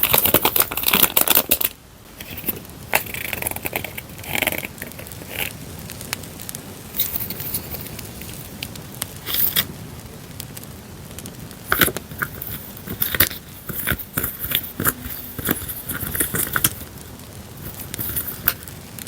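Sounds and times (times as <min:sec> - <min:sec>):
paper rustling and tapping: 0:00.0 - 0:05.5, 0:11.7 - 0:17.0, 0:17.6 - 0:18.7
campfire crackling and popping: 0:00.0 - 0:19.0.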